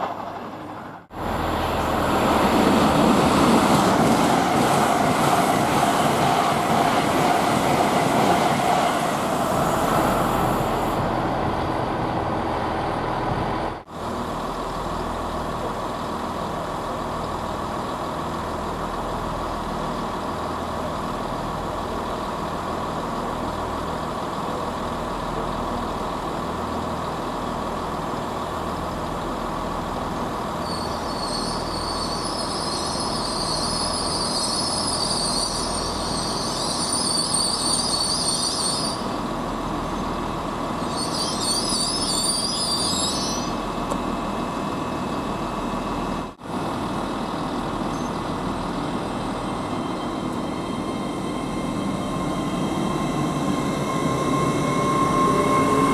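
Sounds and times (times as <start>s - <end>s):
train rumble and hum: 0.0s - 55.9s
high wavering squeal: 30.6s - 39.2s, 40.8s - 43.7s, 49.7s - 55.9s.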